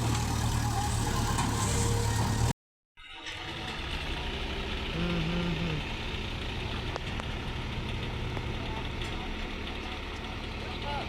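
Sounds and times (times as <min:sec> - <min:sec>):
diesel engines running: 0:00.0 - 0:02.5, 0:03.2 - 0:11.0.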